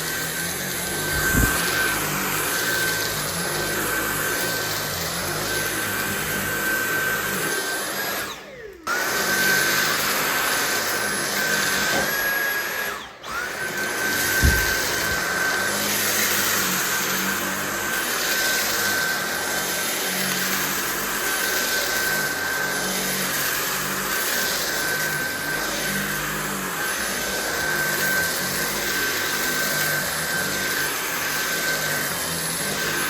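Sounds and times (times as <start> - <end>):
cordless vacuum motor whine: 0.0 - 33.0
dull thump: 14.4 - 15.2.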